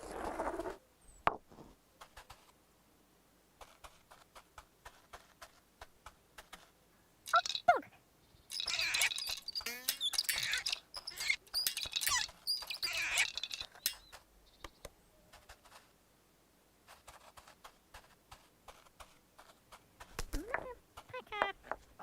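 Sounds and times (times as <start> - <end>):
squeaky cartoon sound effects: 7.3 - 7.9, 8.5 - 14.0.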